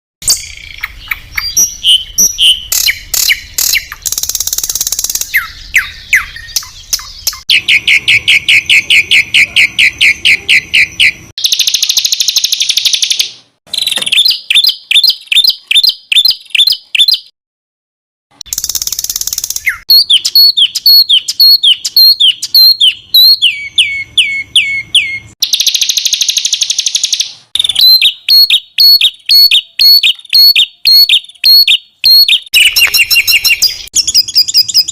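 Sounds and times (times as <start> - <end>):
songbird calls and trills: 0.2 - 17.3, 18.5 - 34.9.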